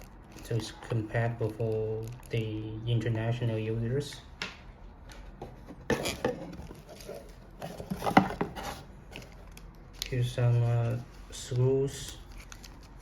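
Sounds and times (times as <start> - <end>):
packaging clicks and rustles: 5.9 - 13.0.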